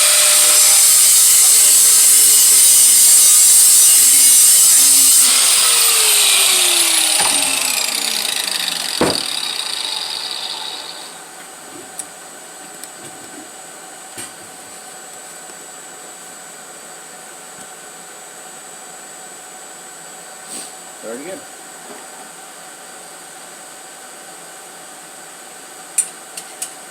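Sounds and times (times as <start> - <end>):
power tool spinning down: 0.0 - 11.4
sharp knock: 7.0 - 9.8.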